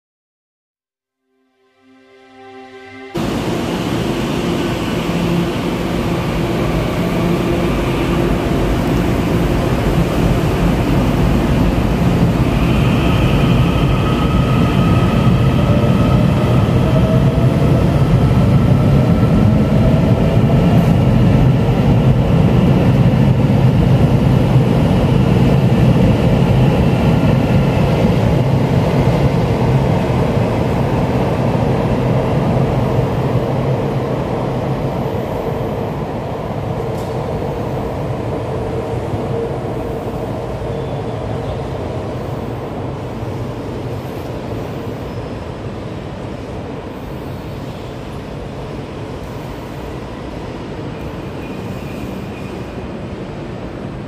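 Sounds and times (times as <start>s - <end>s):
train rumble: 3.1s - 54.0s.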